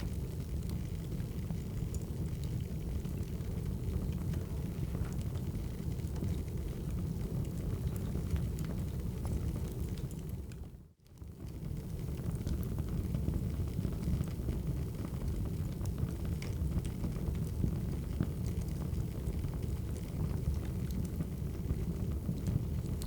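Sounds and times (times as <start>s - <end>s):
wood fire crackling: 0.0s - 10.6s, 11.7s - 23.0s.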